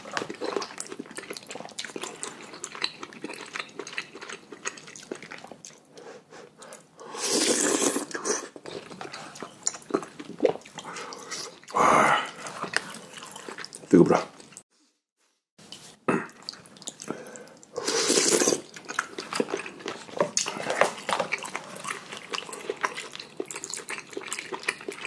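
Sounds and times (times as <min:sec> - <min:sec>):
wet chewing: 0:00.0 - 0:06.9, 0:07.9 - 0:14.6, 0:16.3 - 0:25.0
loud noodle slurp: 0:07.1 - 0:08.6, 0:17.8 - 0:18.7.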